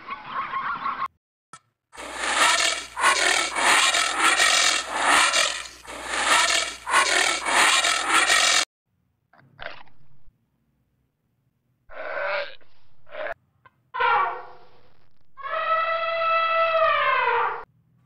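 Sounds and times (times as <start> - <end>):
animals chewing and crunching: 2.0 - 8.6.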